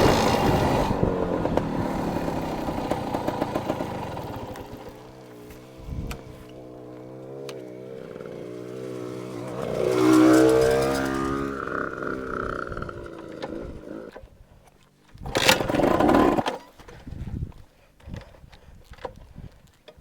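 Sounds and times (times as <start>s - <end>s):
loud rush of noise: 0.0s - 4.5s
dirt bike engine revving: 0.0s - 14.2s, 15.3s - 16.6s.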